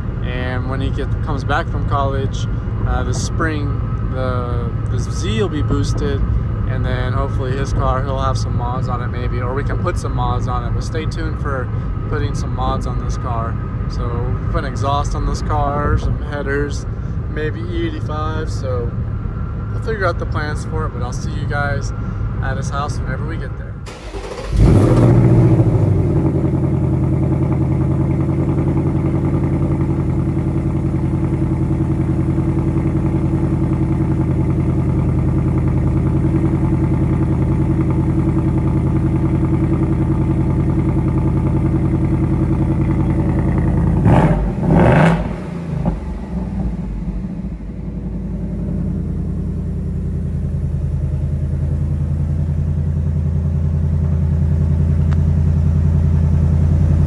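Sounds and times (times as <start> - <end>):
car engine idling: 0.0 - 57.0
engine revving: 23.9 - 30.4, 31.2 - 50.0.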